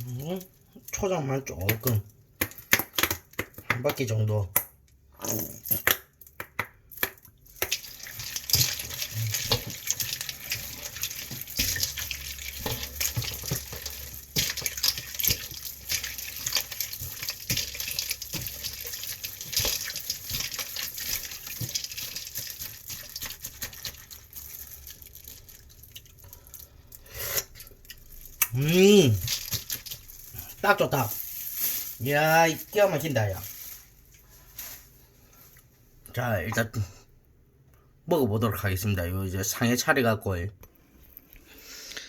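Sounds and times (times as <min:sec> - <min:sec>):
liquid sloshing in a bowl: 0:07.2 - 0:34.8.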